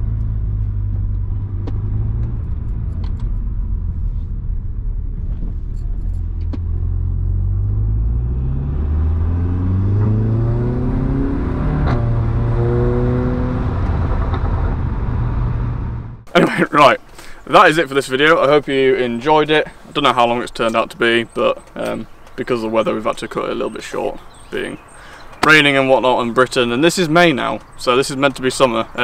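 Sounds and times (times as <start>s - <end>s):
car engine droning and accelerating: 0.0s - 16.3s.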